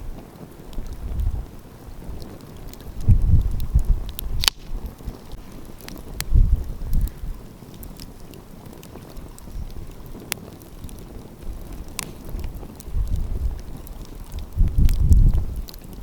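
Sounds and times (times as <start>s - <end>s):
wind rumbling on microphone: 0.0s - 16.0s
wood fire crackling: 0.0s - 16.0s.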